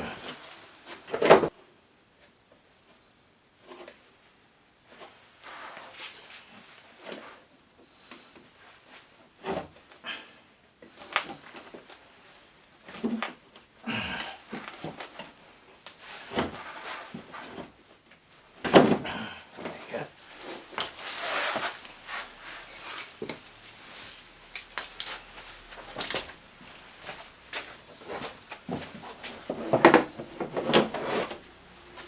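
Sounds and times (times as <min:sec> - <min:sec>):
metal parts clinking and knocking: 0:22.8 - 0:26.3.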